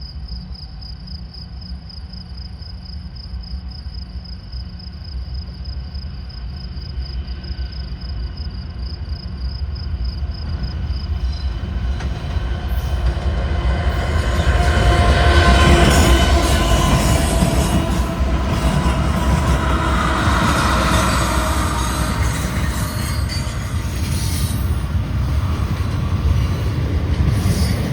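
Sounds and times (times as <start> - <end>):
freight train rumble: 5.2 - 27.9
metallic wheel squeal: 13.9 - 25.0.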